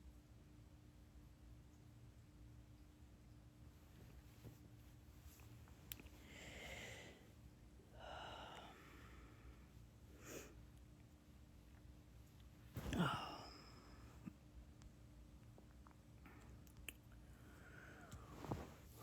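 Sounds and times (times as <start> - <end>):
person breathing: 6.2 - 10.6, 12.8 - 14.3, 17.2 - 19.0.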